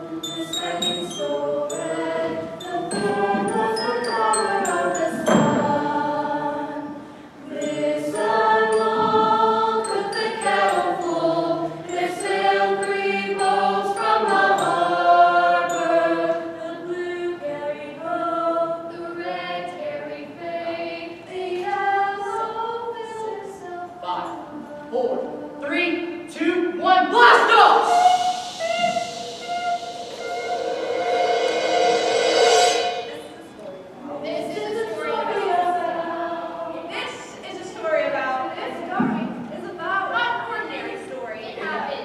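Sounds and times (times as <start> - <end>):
choir singing long notes: 0.0 - 23.2, 27.0 - 36.8.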